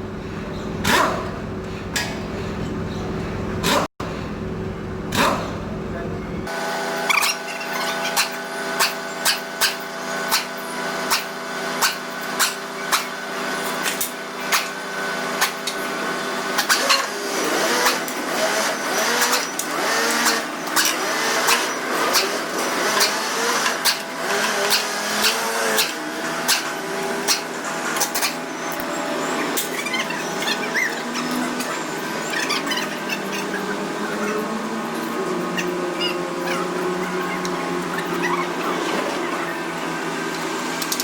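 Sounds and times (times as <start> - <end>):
machine humming: 0.0 - 41.0
wavering pitched sounds: 16.6 - 41.0.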